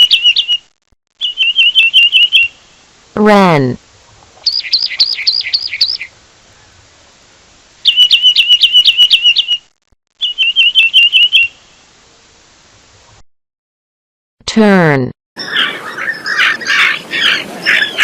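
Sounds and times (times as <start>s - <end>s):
wren singing: 0.0s - 0.6s, 1.2s - 2.6s, 4.4s - 6.1s, 7.8s - 11.6s.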